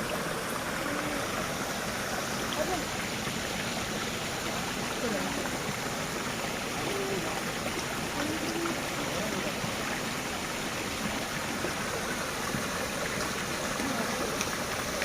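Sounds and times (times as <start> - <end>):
running water rushing: 0.0 - 15.0
faint voices: 0.5 - 1.6, 6.6 - 9.8.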